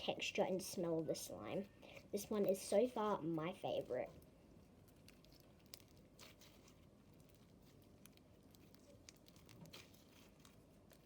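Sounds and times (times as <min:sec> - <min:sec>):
slime clicks and crackles: 0:04.1 - 0:11.0.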